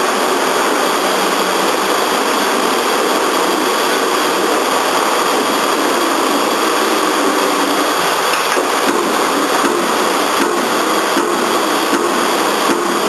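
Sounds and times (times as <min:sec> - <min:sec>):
feed table whir: 0:00.0 - 0:13.0
punch press running: 0:08.1 - 0:13.0.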